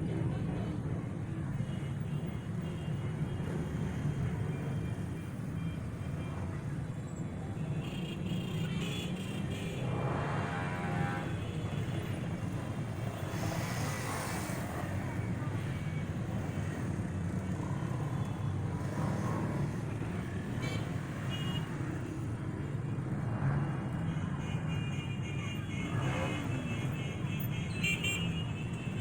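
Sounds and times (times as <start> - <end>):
traffic driving past: 8.4 - 27.2.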